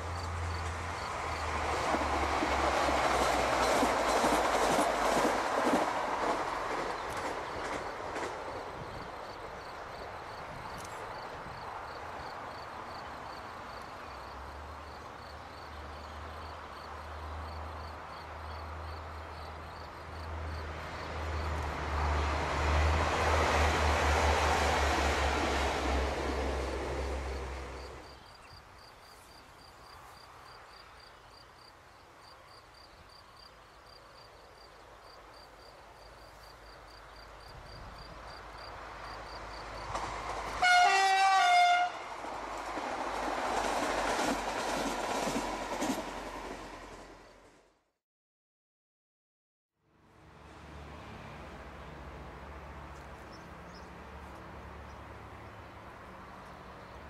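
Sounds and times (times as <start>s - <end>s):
train rumble and hum: 0.0s - 15.2s, 15.8s - 28.2s, 37.2s - 47.8s
distant train approaching: 0.0s - 28.9s, 33.9s - 47.9s.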